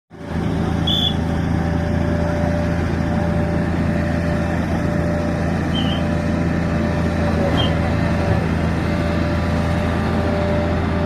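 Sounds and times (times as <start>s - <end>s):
hydraulic machine engine humming: 0.1s - 11.0s.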